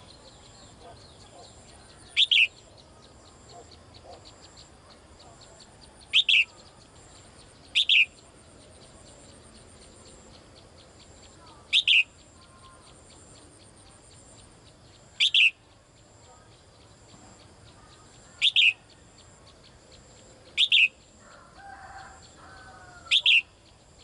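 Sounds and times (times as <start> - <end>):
songbird calling: 0.0 - 24.0.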